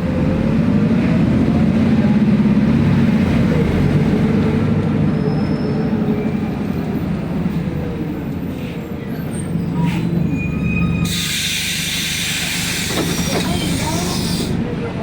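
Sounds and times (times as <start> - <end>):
bus engine rumble: 0.0 - 15.0
road noise: 0.0 - 15.0.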